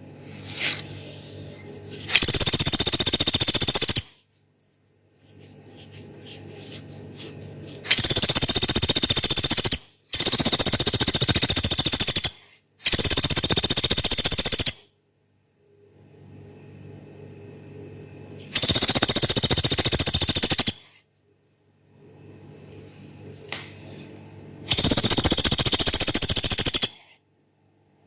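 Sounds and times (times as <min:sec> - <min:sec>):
woodpecker rattling trills: 0:02.1 - 0:04.2, 0:07.9 - 0:14.8, 0:18.6 - 0:20.9, 0:24.7 - 0:27.0.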